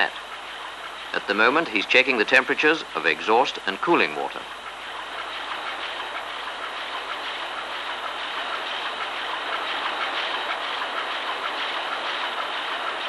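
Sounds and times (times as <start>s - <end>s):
diesel engine clattering: 0.0s - 13.0s.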